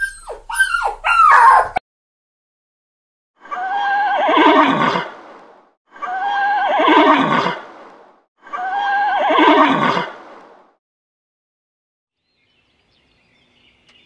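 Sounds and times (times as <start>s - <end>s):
horse whinnying: 3.5s - 5.1s, 6.0s - 7.6s, 8.5s - 10.2s.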